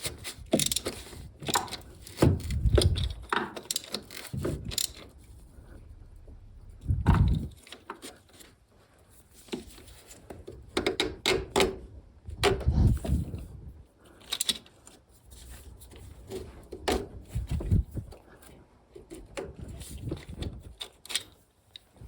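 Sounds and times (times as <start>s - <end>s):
heavy thumps: 6.2s - 7.6s
tools and parts knocking: 10.7s - 11.8s.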